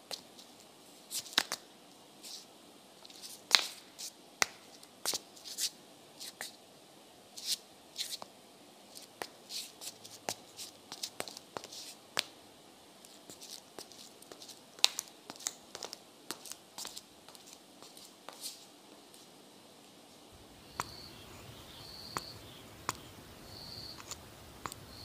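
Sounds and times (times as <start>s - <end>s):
soft rustling: 0.0s - 6.6s, 8.9s - 12.4s, 13.0s - 25.0s
small irregular clicks: 23.9s - 24.9s.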